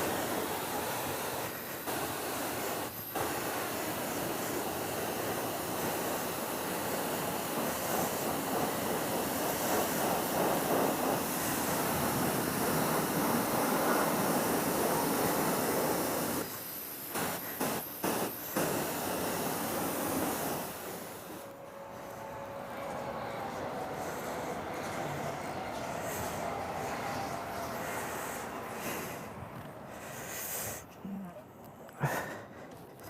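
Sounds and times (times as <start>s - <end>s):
high-pressure water jet spraying: 0.0s - 21.5s.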